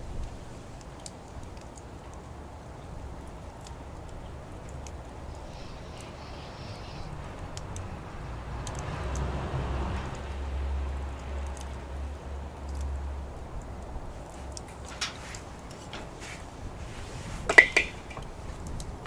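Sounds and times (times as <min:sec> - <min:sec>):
wood fire crackling: 0:00.0 - 0:19.0
low rumble: 0:04.4 - 0:14.3.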